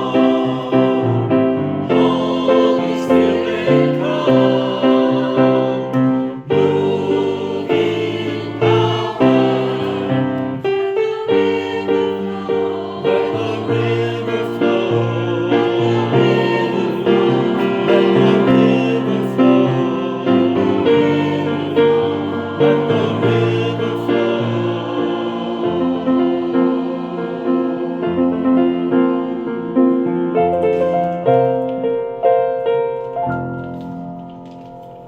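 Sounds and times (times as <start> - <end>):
choir singing a worship song: 0.0 - 31.2
piano accompaniment: 0.0 - 35.0.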